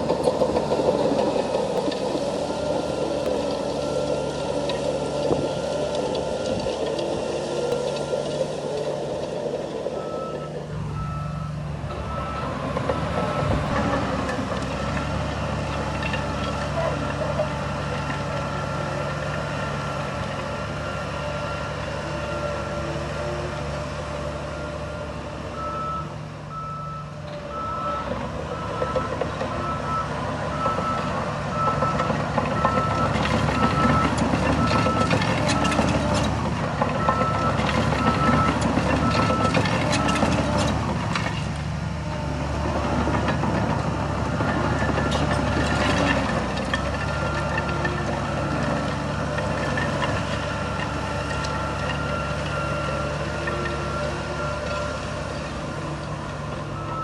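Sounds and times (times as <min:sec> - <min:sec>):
diesel machinery running: 0:00.0 - 0:57.0
reversing alarm beeping: 0:10.0 - 0:13.8, 0:24.6 - 0:36.2, 0:37.0 - 0:40.6, 0:50.4 - 0:55.0, 0:56.6 - 0:57.0.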